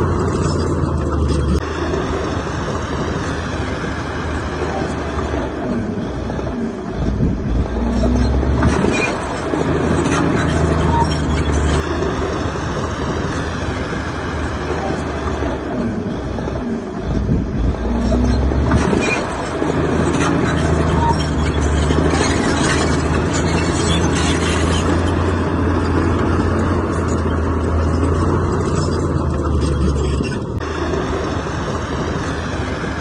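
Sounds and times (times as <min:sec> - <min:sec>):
heavy diesel engine running: 0:00.0 - 0:33.0.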